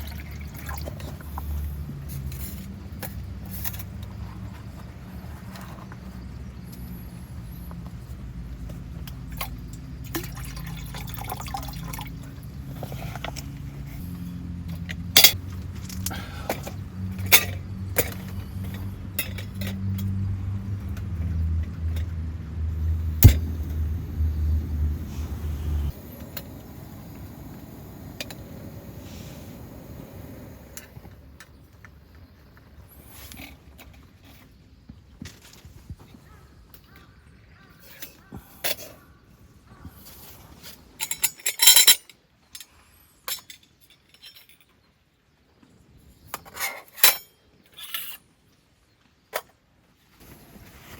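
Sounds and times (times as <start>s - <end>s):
low steady rumble: 9.4s - 31.3s.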